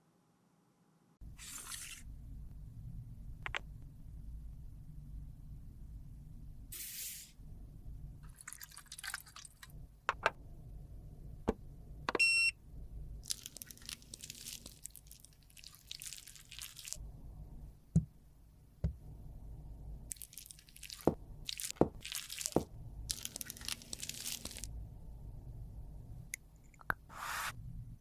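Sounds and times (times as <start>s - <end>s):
sharp clicks and taps: 3.4s - 3.6s
lipstick crackling and squishing: 20.1s - 24.7s.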